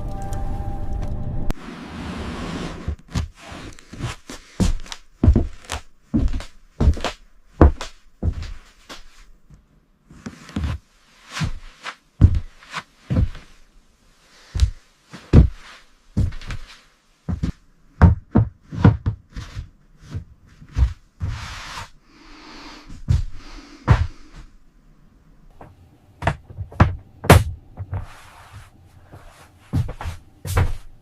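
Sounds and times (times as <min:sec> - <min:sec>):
knocks and thuds of building work: 0:25.5 - 0:28.1
scraping or rustling: 0:27.8 - 0:30.9.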